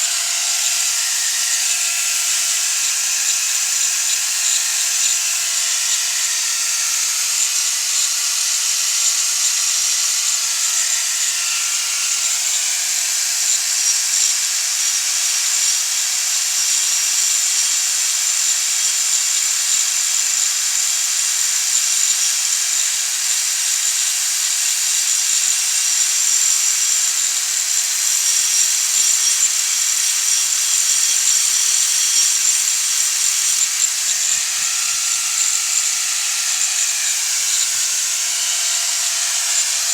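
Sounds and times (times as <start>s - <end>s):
handheld power tool hissing: 0.0s - 13.0s, 25.8s - 39.9s.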